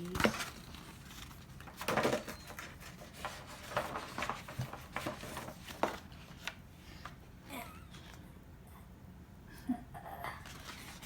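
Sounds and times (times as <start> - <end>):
booklet pages flipping with clicks: 0.0 - 7.2, 10.4 - 11.0
paper rustling: 0.0 - 7.2, 10.4 - 11.0.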